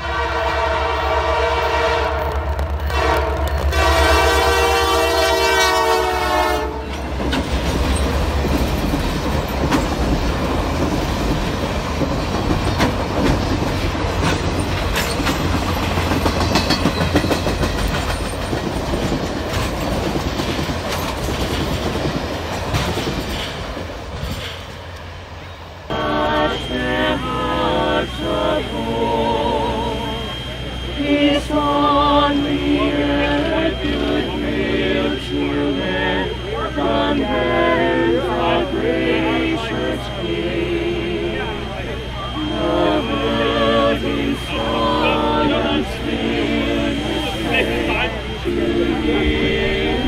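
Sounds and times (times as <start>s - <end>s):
locomotive air horn: 0.0s - 7.1s, 25.9s - 50.0s
carolers singing: 2.9s - 20.2s, 25.9s - 50.0s
train wheels clattering on rails: 6.8s - 25.0s.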